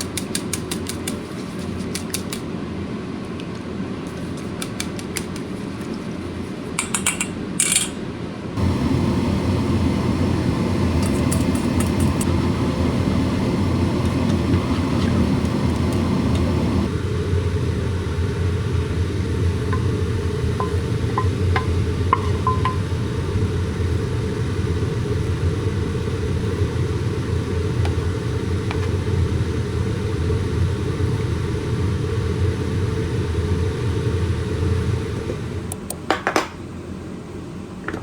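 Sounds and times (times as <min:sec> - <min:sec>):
low rumbling noise: 0:08.6 - 0:35.7.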